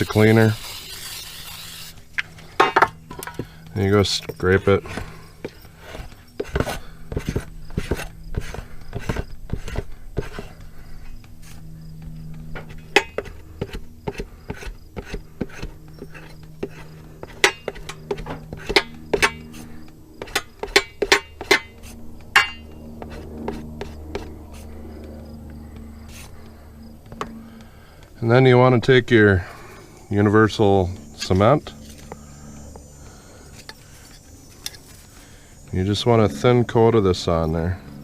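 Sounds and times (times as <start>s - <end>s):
low buzz: 0.0s - 38.0s
rubber inner tube being scraped: 5.8s - 10.6s, 13.2s - 22.0s.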